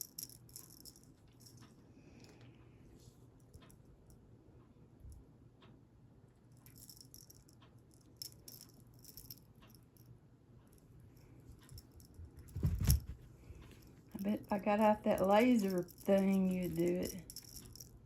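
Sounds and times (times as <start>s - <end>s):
cat toy rattling and jingling: 11.7s - 13.2s, 14.2s - 18.0s.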